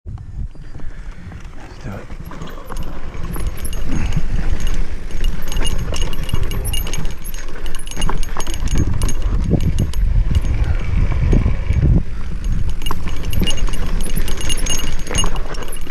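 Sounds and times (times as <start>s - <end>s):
wind rumbling on microphone: 0.1s - 15.9s
mountain bike rattling and clicking: 0.4s - 15.9s.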